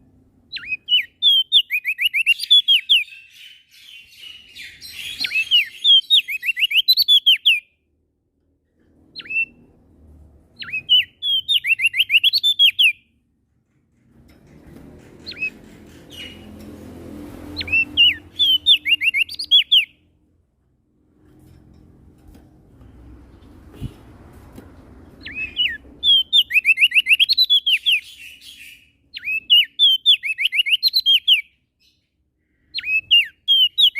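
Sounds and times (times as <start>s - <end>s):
songbird singing whistled notes: 0.5s - 7.7s, 9.2s - 9.6s, 10.6s - 13.1s, 17.6s - 20.0s, 25.2s - 32.0s, 32.8s - 33.9s.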